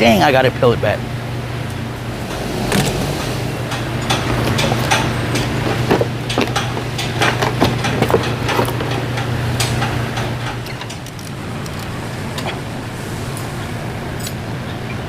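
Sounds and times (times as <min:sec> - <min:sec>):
low machine hum: 0:00.0 - 0:15.0
hand tools clinking on metal: 0:03.7 - 0:11.1.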